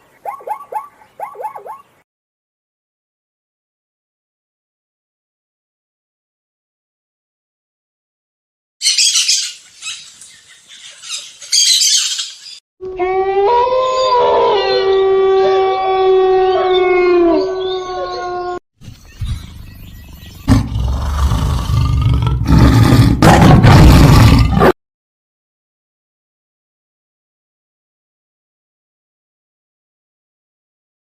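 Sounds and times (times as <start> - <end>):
loud rough roar: 20.5 - 24.7.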